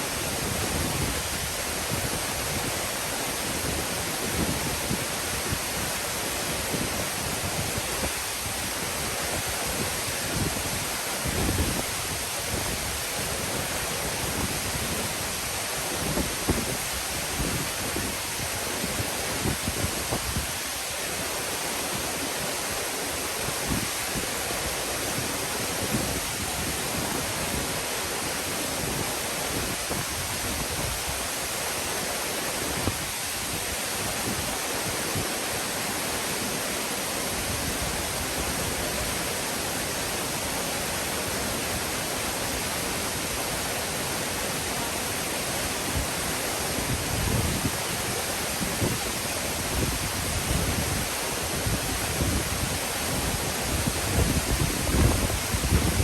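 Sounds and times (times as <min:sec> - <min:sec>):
waterfall rushing: 0:00.0 - 0:56.0
wind bumps on microphone: 0:16.0 - 0:20.6, 0:46.8 - 0:56.0.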